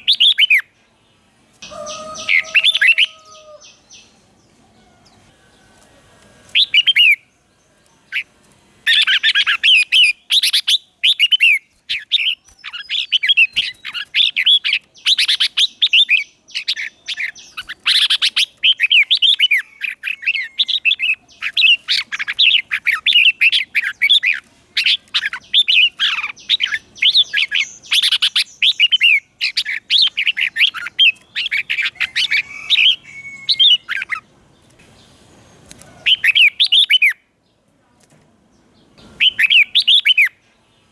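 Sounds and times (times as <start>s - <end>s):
bulbul singing: 1.6s - 37.3s, 39.0s - 40.4s.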